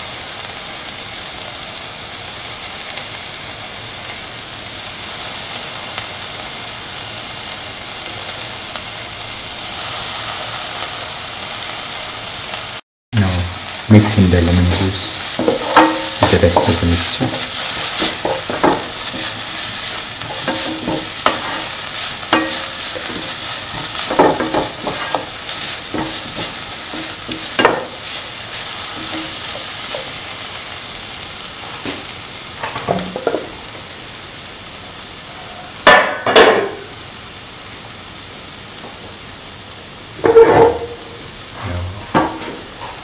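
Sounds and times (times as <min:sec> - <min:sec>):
onions sizzling in hot oil: 0:00.0 - 0:43.0
spoon scraping pan: 0:14.6 - 0:30.1.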